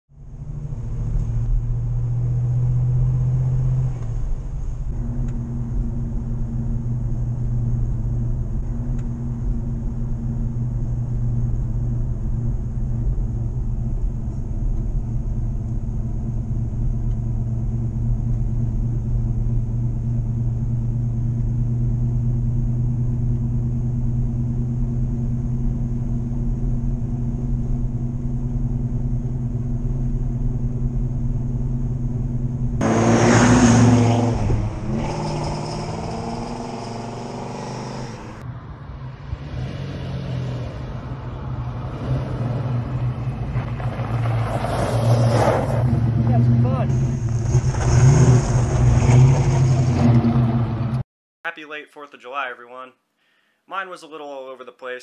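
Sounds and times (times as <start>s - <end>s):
car engine running: 0.1s - 38.4s
road noise: 0.1s - 51.0s
engine revving loudly: 32.8s - 38.4s, 44.7s - 51.0s.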